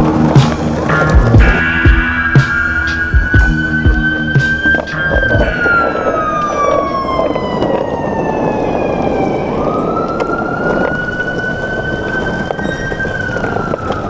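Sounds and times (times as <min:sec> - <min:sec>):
steady rush of noise: 0:00.0 - 0:09.6
siren wailing: 0:00.0 - 0:14.0.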